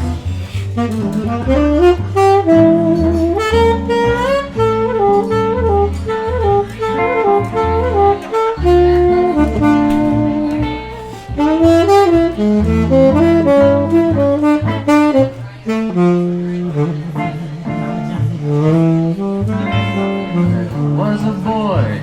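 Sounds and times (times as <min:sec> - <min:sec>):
jazz saxophone solo: 0:00.0 - 0:22.0
low bass line: 0:00.0 - 0:22.0.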